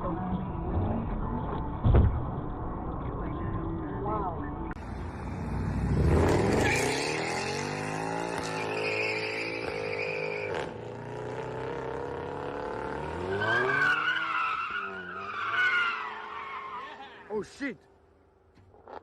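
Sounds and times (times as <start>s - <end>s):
car engine revving: 4.8s - 17.1s
tires squealing: 6.1s - 10.8s, 12.8s - 17.5s.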